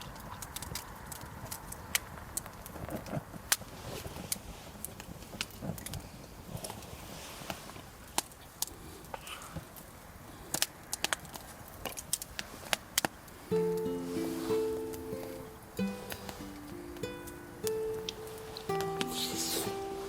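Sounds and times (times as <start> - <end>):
campfire crackling: 0.0 - 20.0
low background hiss: 11.4 - 20.0.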